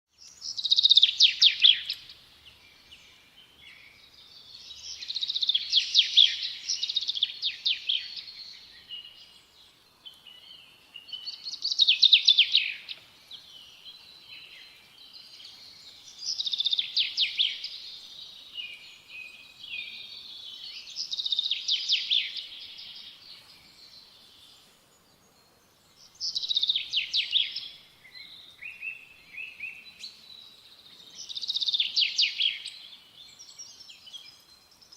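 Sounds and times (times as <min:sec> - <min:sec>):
faint outdoor background: 0:00.0 - 0:34.9
songbird trilling: 0:00.3 - 0:02.2, 0:10.4 - 0:14.6, 0:15.7 - 0:23.2.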